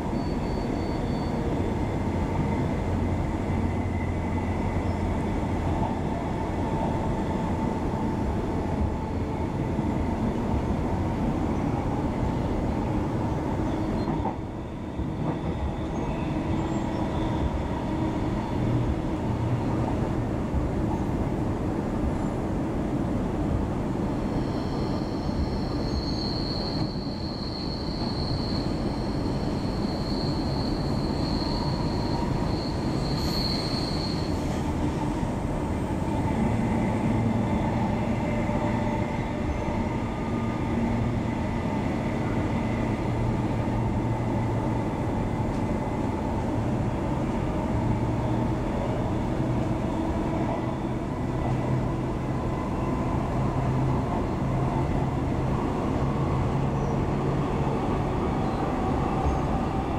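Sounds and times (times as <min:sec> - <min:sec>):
train wheels rumbling on rail: 0:00.0 - 0:59.9
high thin squeal: 0:24.3 - 0:34.6.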